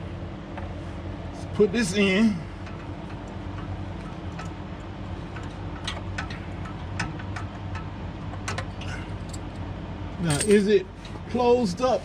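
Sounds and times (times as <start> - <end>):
steady low hum: 0.0 - 12.0
small metal clicks and taps: 5.4 - 8.7.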